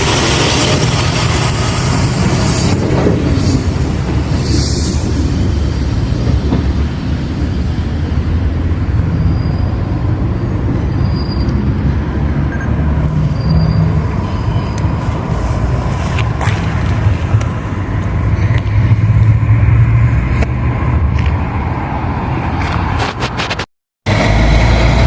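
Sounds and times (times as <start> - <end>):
train rumbling past: 0.0 - 12.4, 24.1 - 25.0
high-pitched wheel squeals: 9.1 - 11.7, 12.5 - 15.1.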